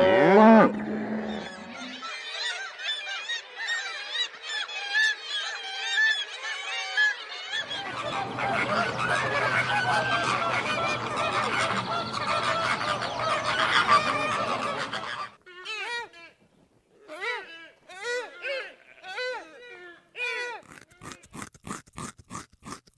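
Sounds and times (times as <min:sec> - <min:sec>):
geese honking: 0:00.0 - 0:02.1, 0:07.6 - 0:15.4.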